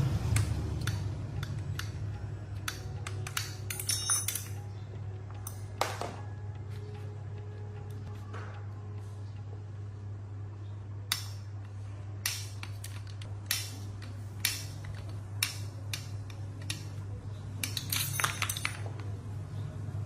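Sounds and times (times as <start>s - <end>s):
steady low hum: 0.0s - 20.0s
metal parts clinking: 2.7s - 4.7s, 12.2s - 17.0s, 17.6s - 19.2s.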